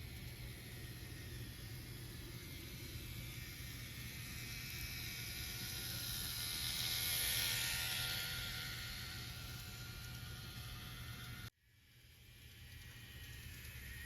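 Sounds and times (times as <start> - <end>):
model train running past: 0.0 - 14.0.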